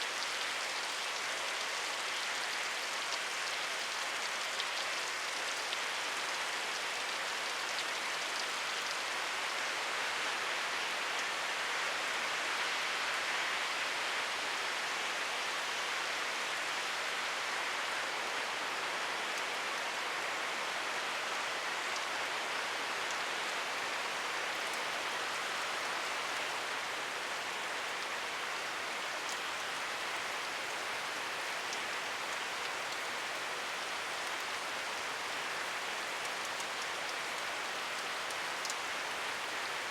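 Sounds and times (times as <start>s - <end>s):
steady rainfall: 0.0s - 39.9s
ticks of raindrops: 22.9s - 39.9s.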